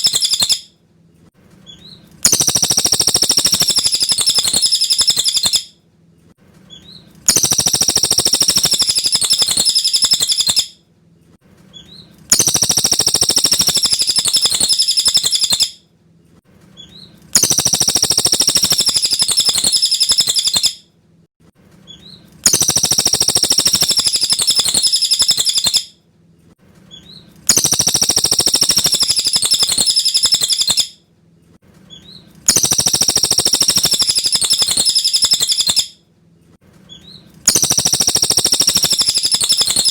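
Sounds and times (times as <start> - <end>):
bird chattering song: 0.0 - 0.6, 1.7 - 5.7, 6.7 - 10.7, 11.8 - 15.8, 16.8 - 20.8, 21.9 - 25.9, 26.9 - 30.9, 31.9 - 35.9, 36.9 - 39.9.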